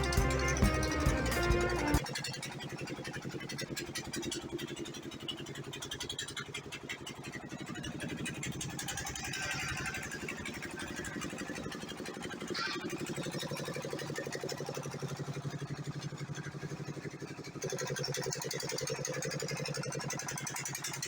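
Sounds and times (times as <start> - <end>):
diesel generator running: 0.0 - 19.6.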